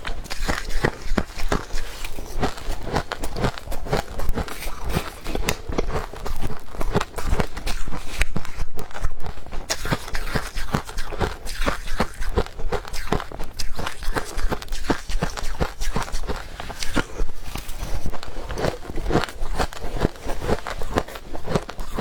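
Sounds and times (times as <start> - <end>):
chewing crunchy frost: 0.0 - 22.0.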